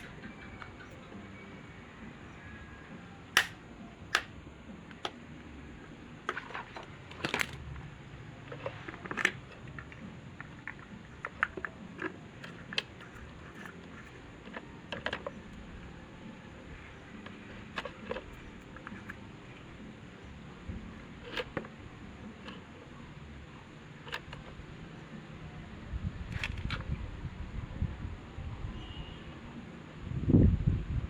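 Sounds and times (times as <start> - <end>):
tools clicking and knocking: 3.4 - 4.3, 4.9 - 5.2, 8.5 - 15.7, 17.1 - 19.4, 21.2 - 22.7.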